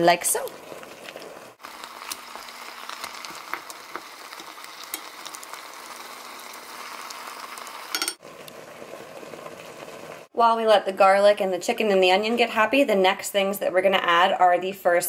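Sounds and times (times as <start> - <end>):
chicken and onion sizzling: 0.0 - 11.3.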